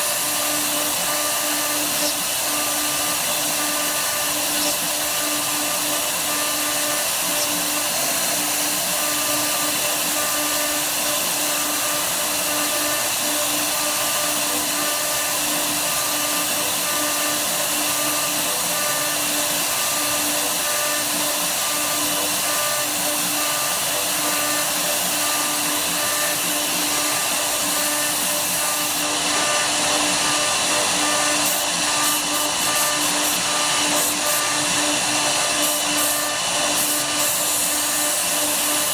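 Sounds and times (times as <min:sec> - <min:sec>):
router spindle whine: 0:00.0 - 0:38.9.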